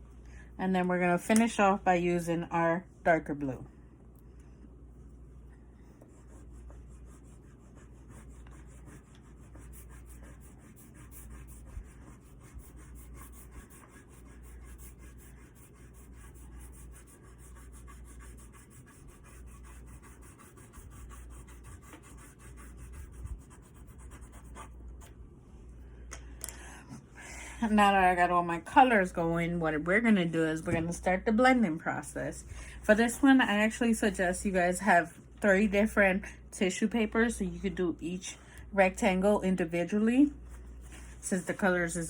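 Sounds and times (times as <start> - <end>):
oil pastel scribbling on paper: 5.9 - 25.1.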